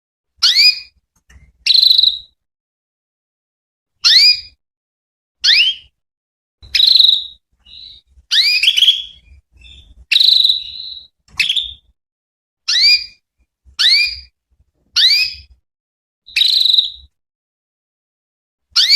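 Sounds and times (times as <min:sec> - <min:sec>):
canary whistled calls: 0:00.4 - 0:00.9, 0:01.6 - 0:02.4, 0:04.0 - 0:04.6, 0:05.4 - 0:06.0, 0:06.6 - 0:12.0, 0:12.7 - 0:13.2, 0:13.8 - 0:14.3, 0:15.0 - 0:15.5, 0:16.3 - 0:17.1.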